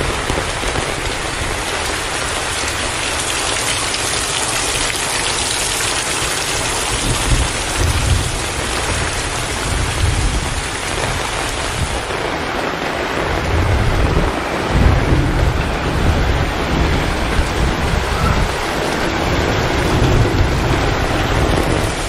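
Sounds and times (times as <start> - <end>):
heavy rain falling: 0.0 - 22.0
low thunder rumbles: 6.3 - 22.0.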